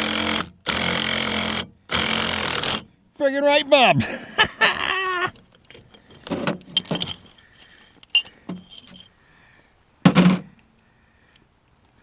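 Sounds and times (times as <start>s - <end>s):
metal tools clinking and rattling: 5.6s - 9.2s.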